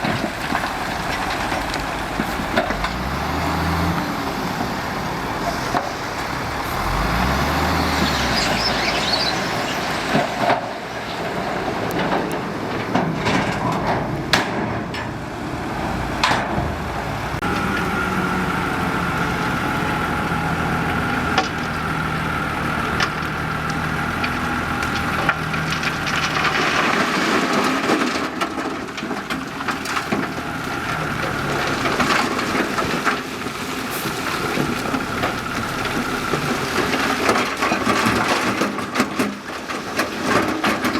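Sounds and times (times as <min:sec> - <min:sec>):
heavy machinery engines droning: 0:00.0 - 0:40.9
sharp knocks and clanks: 0:12.0 - 0:15.2.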